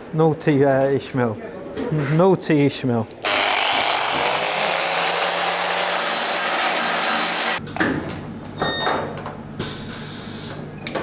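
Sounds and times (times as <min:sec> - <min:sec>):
workshop clatter: 0:03.2 - 0:11.0
power tool hissing: 0:03.3 - 0:07.6.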